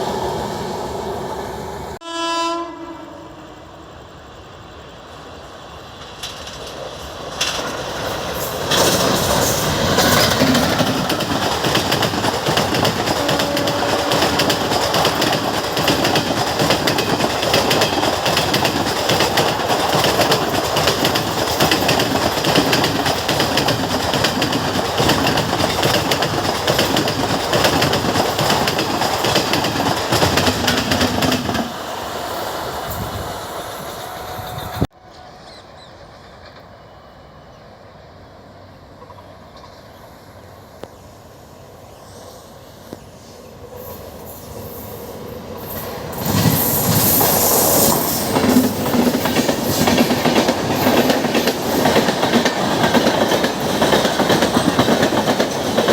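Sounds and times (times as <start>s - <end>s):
train wheels clattering over rail joints: 6.0s - 31.8s, 45.6s - 55.9s.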